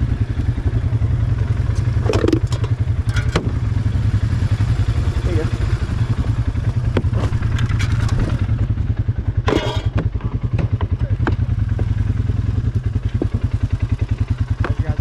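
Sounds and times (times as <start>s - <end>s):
engine throbbing: 0.0s - 15.0s
clattering knocks: 9.5s - 11.4s.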